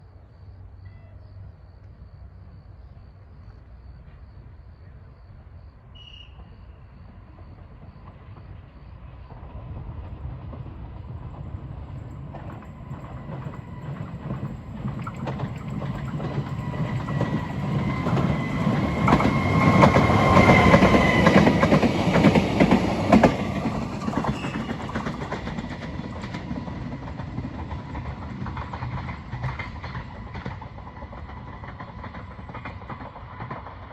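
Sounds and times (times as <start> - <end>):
electric railcar running on rails: 0.0 - 33.9
wheels clacking over rail joints: 10.0 - 33.9.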